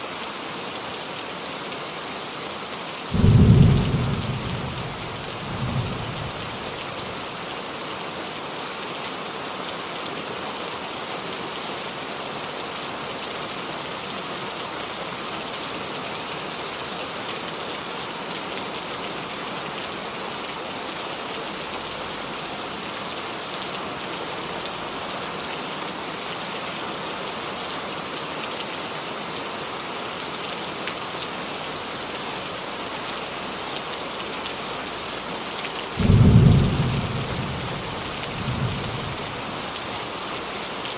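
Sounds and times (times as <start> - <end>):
rain on a roof: 0.0 - 40.9.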